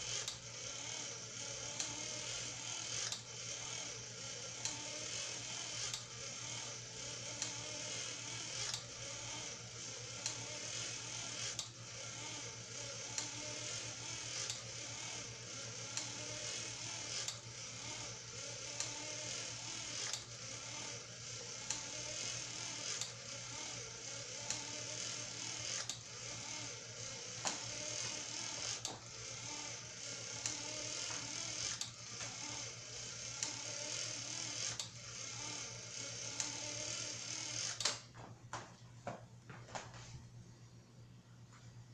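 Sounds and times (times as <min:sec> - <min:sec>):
electric motor whirring: 0:00.0 - 0:38.1.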